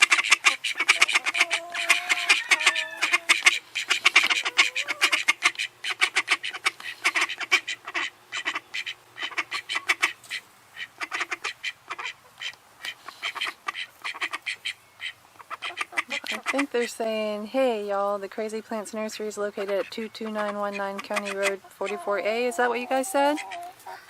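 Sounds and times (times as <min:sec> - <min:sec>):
flock of birds chattering: 0:00.0 - 0:24.0.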